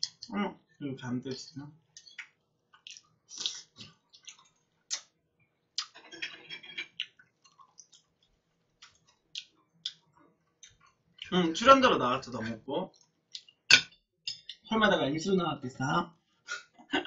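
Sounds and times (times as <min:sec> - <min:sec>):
wet chewing mouth clicks: 0:02.0 - 0:05.1, 0:06.9 - 0:08.1, 0:08.8 - 0:11.3, 0:13.0 - 0:13.6.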